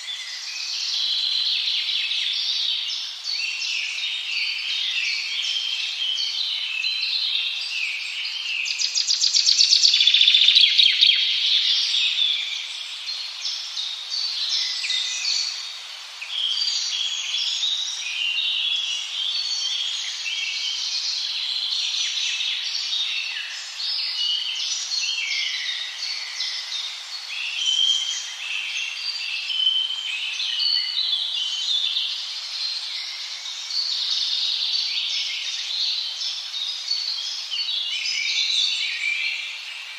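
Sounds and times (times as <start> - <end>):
songbirds chirping and warbling: 0.0 - 39.9.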